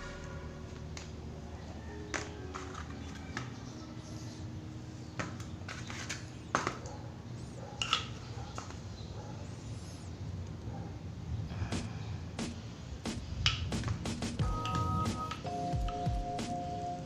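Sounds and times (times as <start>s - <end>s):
low steady hum: 0.0s - 5.7s.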